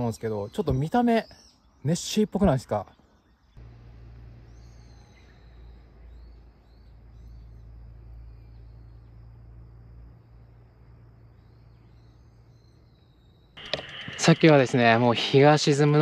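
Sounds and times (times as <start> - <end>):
faint bird chirps: 0.0 - 14.6
low steady rumble: 3.6 - 14.2.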